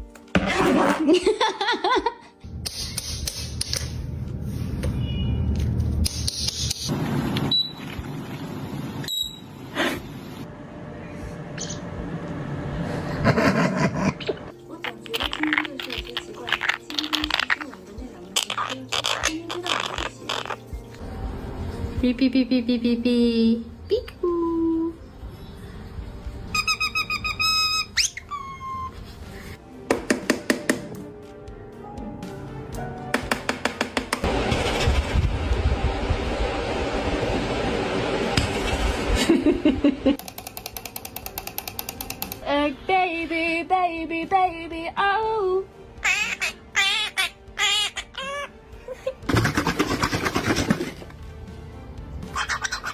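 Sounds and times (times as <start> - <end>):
parrot whistling: 26.5 - 29.0, 52.3 - 52.9.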